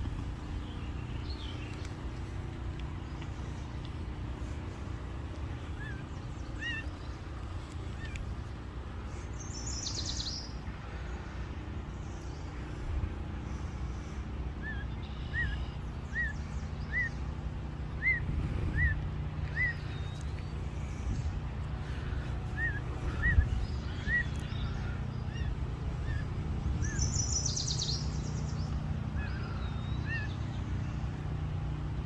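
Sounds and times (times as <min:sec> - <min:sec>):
songbirds chirping: 0:00.0 - 0:32.0
steady low rumble: 0:00.0 - 0:32.0.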